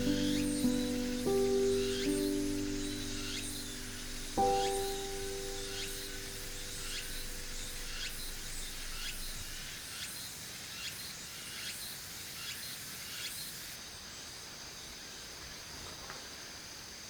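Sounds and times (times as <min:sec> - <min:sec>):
background music: 0:00.0 - 0:09.1
insect chorus: 0:00.0 - 0:17.0.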